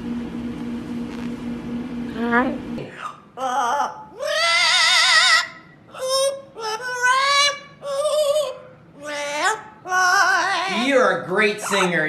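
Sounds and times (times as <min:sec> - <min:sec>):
parrot singing: 0:03.0 - 0:12.0.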